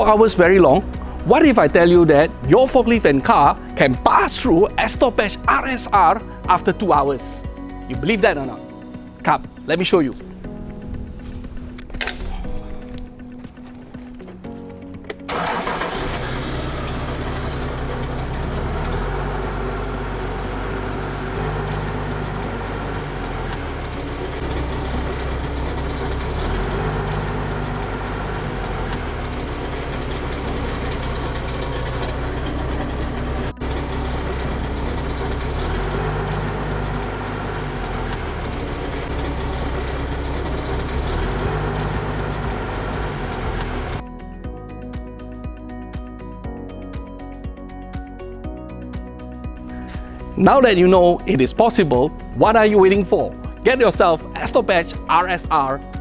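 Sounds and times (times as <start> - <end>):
vehicle engine running: 0.0 - 8.4, 15.3 - 44.1.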